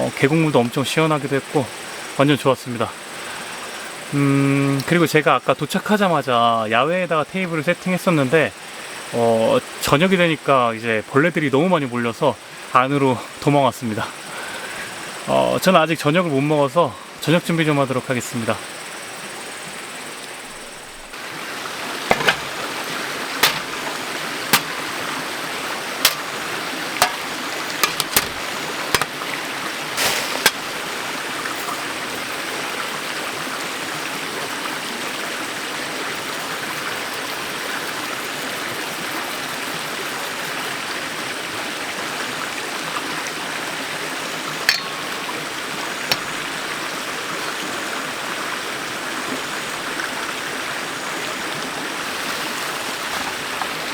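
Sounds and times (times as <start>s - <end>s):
stream flowing: 0.0s - 53.9s
sharp clicks and knocks: 22.1s - 22.6s, 23.4s - 23.7s, 24.5s - 24.8s, 26.0s - 26.3s, 27.0s - 29.2s, 30.4s - 30.6s, 46.1s - 46.4s.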